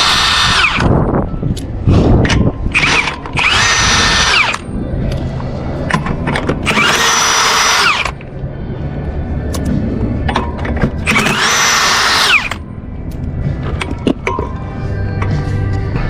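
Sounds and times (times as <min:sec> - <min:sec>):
impact wrench bursts: 0:00.0 - 0:00.9, 0:02.8 - 0:04.6, 0:06.6 - 0:08.2, 0:11.1 - 0:12.6.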